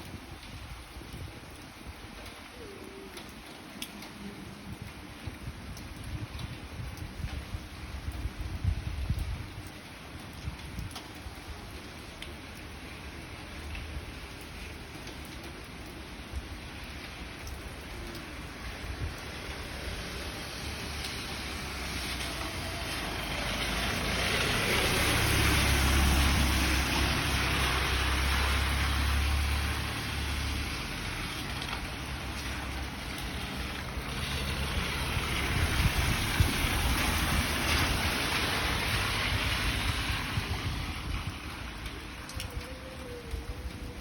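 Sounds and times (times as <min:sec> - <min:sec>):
heavy rain hissing: 0:12.8 - 0:44.0.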